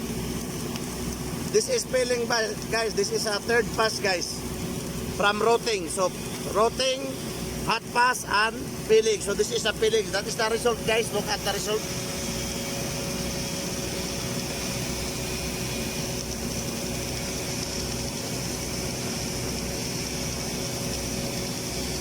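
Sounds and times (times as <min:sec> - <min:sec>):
machinery drone: 0:01.4 - 0:22.0.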